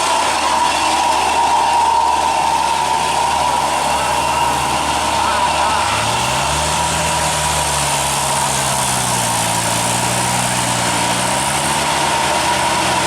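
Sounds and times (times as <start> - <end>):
steady high tone: 0.0 - 8.4
vehicle engine running: 0.0 - 13.0.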